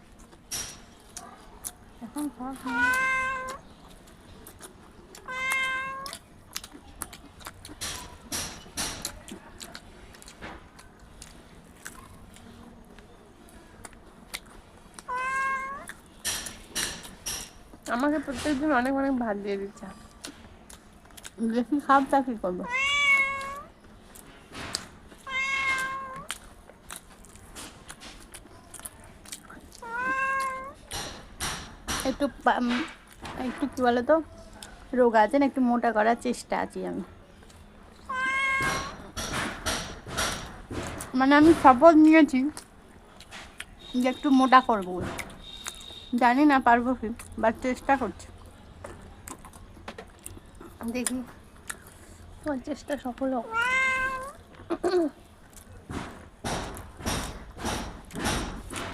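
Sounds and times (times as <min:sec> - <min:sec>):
cat eating with small clicks: 0:00.0 - 0:18.1
cat meowing: 0:02.6 - 0:03.6, 0:05.2 - 0:06.2, 0:15.1 - 0:16.0, 0:22.6 - 0:23.7, 0:25.2 - 0:26.4, 0:29.8 - 0:30.8, 0:38.1 - 0:39.1, 0:53.5 - 0:54.4.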